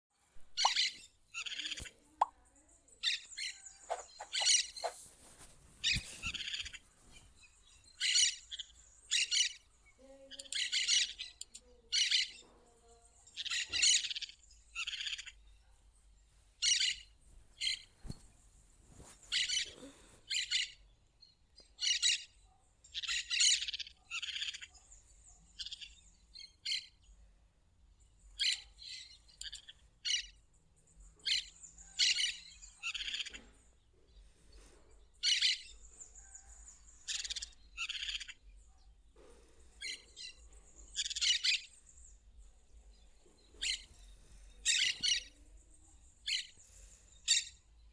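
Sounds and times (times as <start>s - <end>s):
parakeet chirping: 0.6s - 1.9s, 3.8s - 5.0s.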